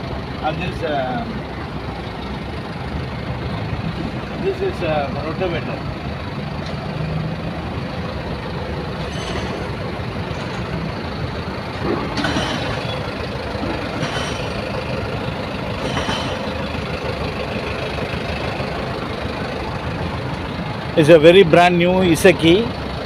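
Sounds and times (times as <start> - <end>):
machinery rumble: 0.0 - 23.0
short clanks: 9.0 - 11.0, 11.7 - 15.1, 15.7 - 16.8.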